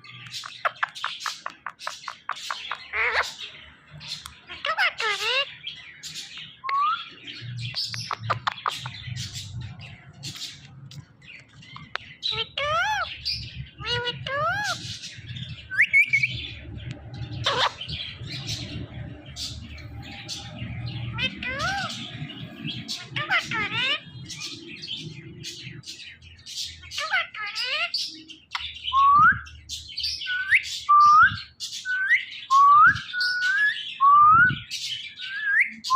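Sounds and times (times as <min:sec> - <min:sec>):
parrot chattering: 0:00.2 - 0:03.4, 0:04.1 - 0:05.5, 0:07.9 - 0:09.7, 0:11.8 - 0:15.1, 0:17.4 - 0:18.5, 0:20.3 - 0:24.5, 0:26.8 - 0:28.0.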